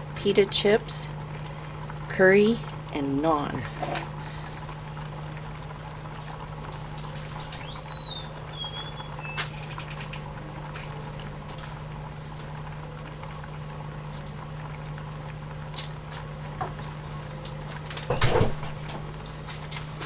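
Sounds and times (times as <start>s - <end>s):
steady low hum: 0.0s - 9.3s
food simmering in pots: 0.0s - 20.0s
short squeaky tones: 7.6s - 10.0s.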